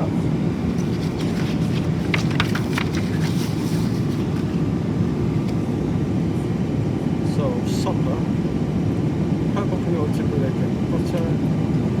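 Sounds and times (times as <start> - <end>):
airplane cabin drone in flight: 0.0 - 12.0
light clicks and clatters: 0.7 - 4.5.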